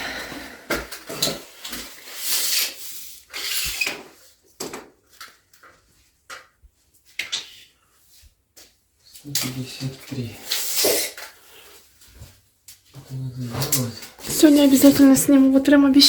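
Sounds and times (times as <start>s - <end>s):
scraping and rubbing of objects: 0.0s - 4.8s.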